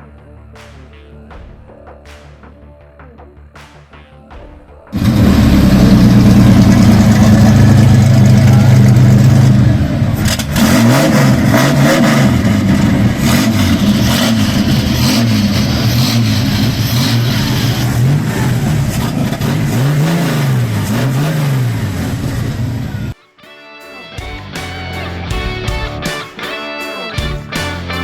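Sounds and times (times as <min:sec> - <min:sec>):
car engine revving: 0:05.0 - 0:23.2.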